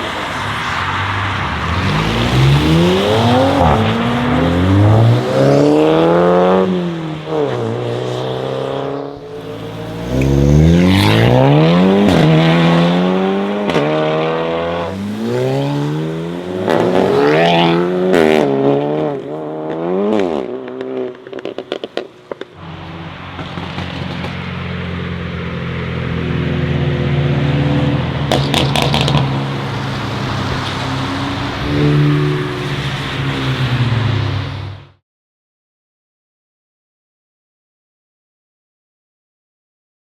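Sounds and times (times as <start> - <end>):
sports car engine revving: 1.7 - 21.6.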